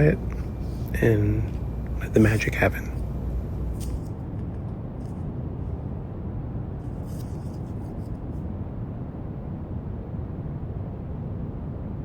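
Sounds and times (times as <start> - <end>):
drawing on paper: 0.0 - 4.2, 6.9 - 8.1
brown noise hiss: 0.0 - 5.1.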